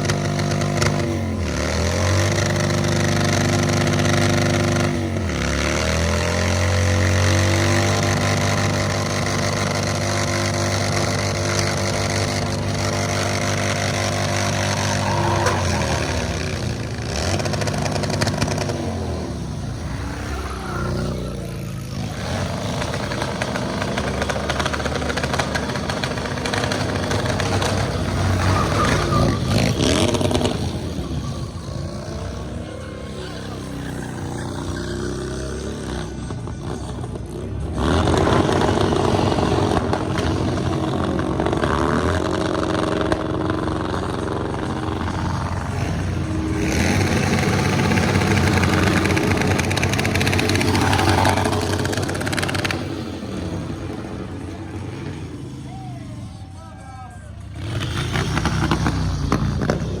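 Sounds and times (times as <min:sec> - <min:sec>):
motorcycle engine revving: 0:00.0 - 1:00.0.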